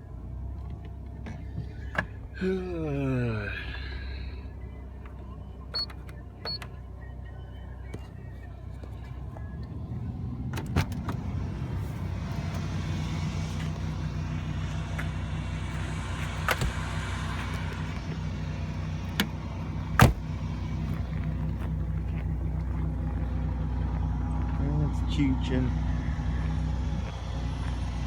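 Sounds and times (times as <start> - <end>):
car engine idling: 0.0 - 28.0
short sharp engine knocks: 20.0 - 20.4.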